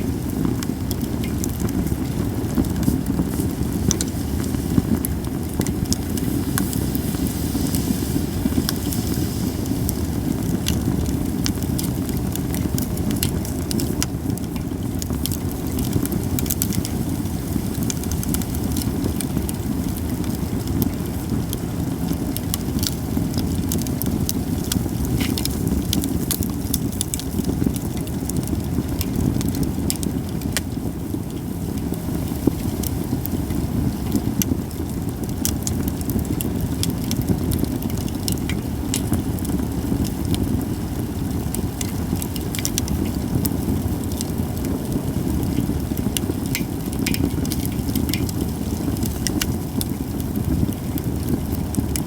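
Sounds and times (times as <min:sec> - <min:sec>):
steady low rumble: 0:00.0 - 0:20.7, 0:35.8 - 0:52.0
campfire crackling and popping: 0:00.0 - 0:52.0.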